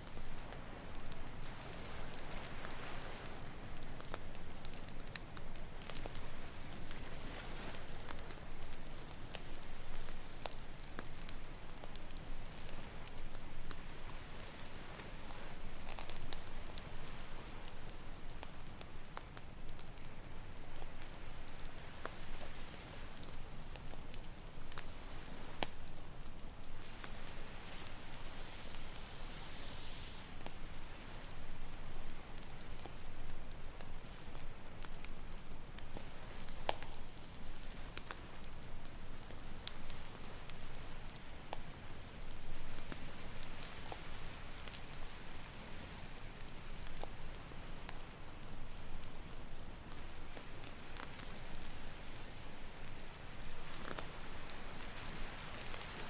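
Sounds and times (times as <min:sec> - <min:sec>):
campfire crackling and popping: 0:00.0 - 0:56.0
ocean waves: 0:00.2 - 0:04.7, 0:26.7 - 0:32.8, 0:50.8 - 0:56.0
ocean surf: 0:26.8 - 0:31.7.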